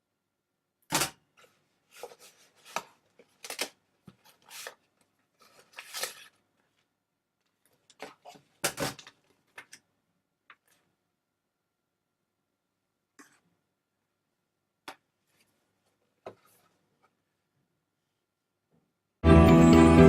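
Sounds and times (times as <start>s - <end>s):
packaging rustling and clicking: 1.9s - 9.8s.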